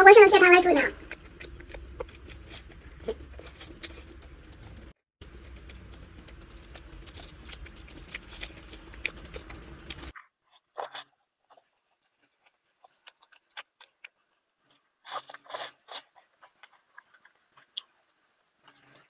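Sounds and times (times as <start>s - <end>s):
wet chewing: 0.4s - 19.0s
low hum: 0.8s - 10.1s.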